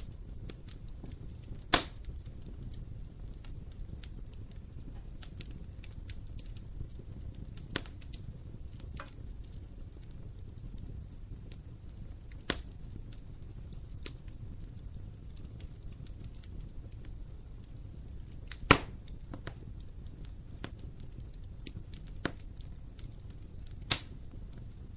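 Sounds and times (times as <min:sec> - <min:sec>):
fire crackling: 0:00.0 - 0:24.9
low rumble of fire: 0:00.0 - 0:24.9
loud wood pops: 0:01.7 - 0:02.0, 0:18.5 - 0:19.6.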